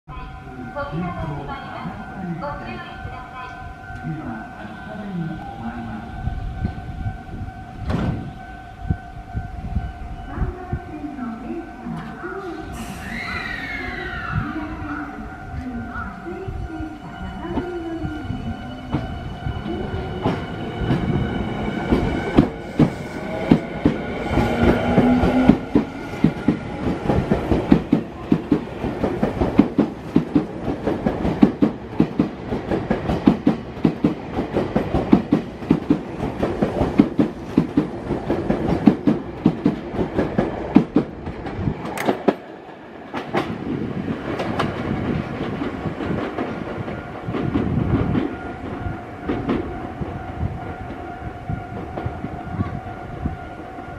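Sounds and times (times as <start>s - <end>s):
low train rumble: 0.1s - 53.9s.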